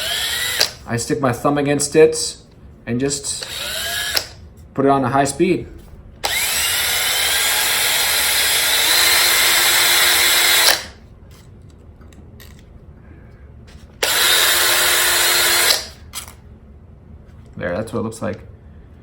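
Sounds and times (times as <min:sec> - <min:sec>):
electric drill running: 0:00.0 - 0:00.8, 0:03.4 - 0:04.4, 0:06.2 - 0:11.0, 0:14.0 - 0:16.3.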